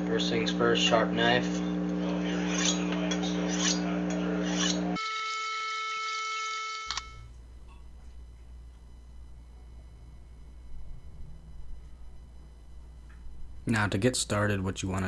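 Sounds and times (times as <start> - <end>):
knife scraping on sharpener: 3.5 - 4.8
low hum: 6.6 - 15.0.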